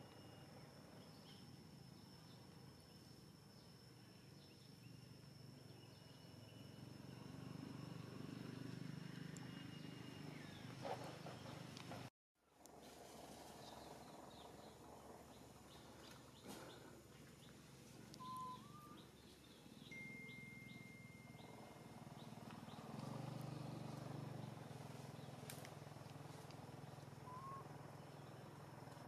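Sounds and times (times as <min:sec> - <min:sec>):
bird chirps: 0:08.5 - 0:11.8, 0:13.6 - 0:25.4, 0:27.2 - 0:28.5.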